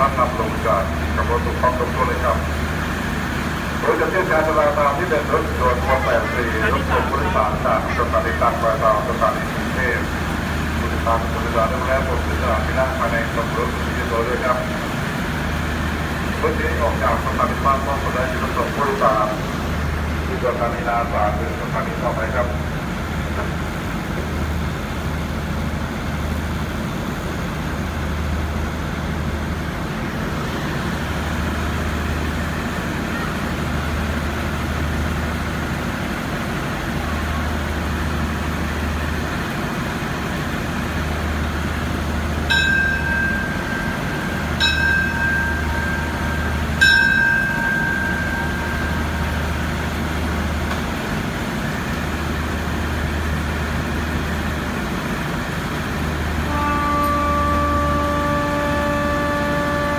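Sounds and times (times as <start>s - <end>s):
train engines rumbling: 0.0s - 59.9s
high-pitched train toots: 41.6s - 50.3s, 56.2s - 59.9s.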